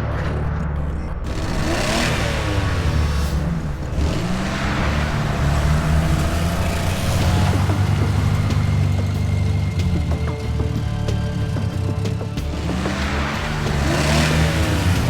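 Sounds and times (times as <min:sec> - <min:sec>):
cartoon car engine revving: 0:00.0 - 0:15.0.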